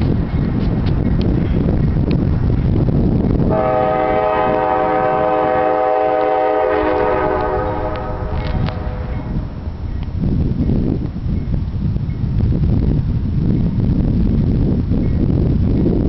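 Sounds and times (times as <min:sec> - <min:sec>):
passing train rumble: 0:00.0 - 0:16.0
wind noise on microphone: 0:00.0 - 0:16.0
locomotive air horn blast: 0:03.5 - 0:09.6.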